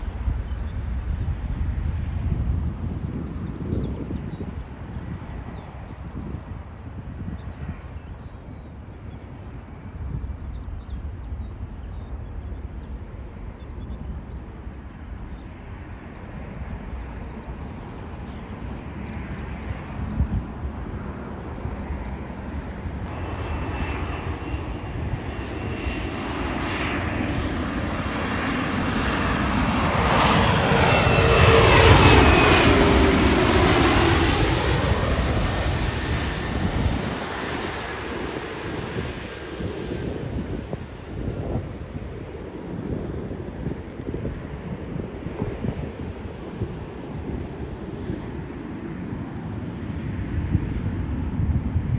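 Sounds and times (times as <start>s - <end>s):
airplane passing overhead: 0.0s - 51.9s
wind on microphone: 0.0s - 51.9s.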